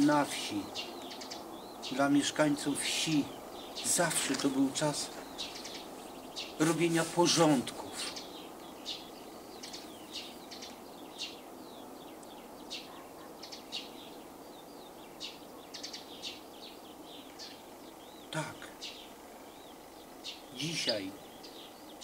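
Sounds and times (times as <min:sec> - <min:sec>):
faint background noise: 0:00.0 - 0:22.0
small birds chirping: 0:00.0 - 0:22.0.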